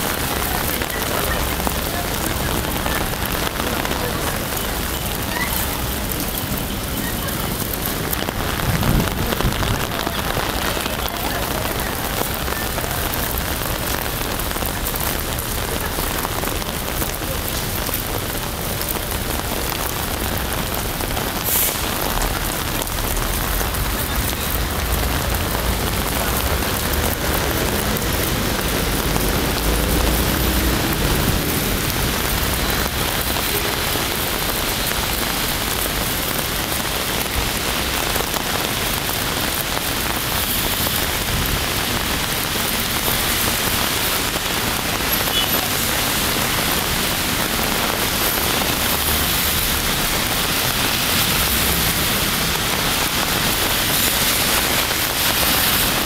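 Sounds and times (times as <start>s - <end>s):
rain pattering on umbrella: 0.0s - 56.0s
rain splashing on street: 0.0s - 56.0s.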